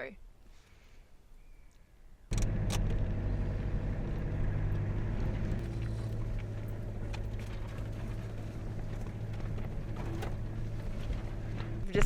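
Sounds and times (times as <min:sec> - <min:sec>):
vehicle engine humming: 0:02.3 - 0:12.0.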